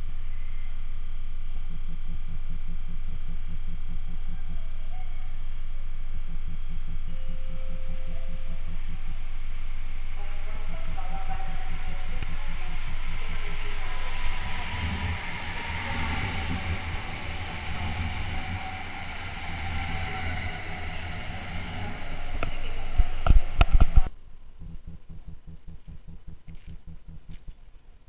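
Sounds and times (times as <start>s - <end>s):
faint outdoor background: 0.0s - 28.0s
train wheels rumbling on rails: 8.6s - 24.1s.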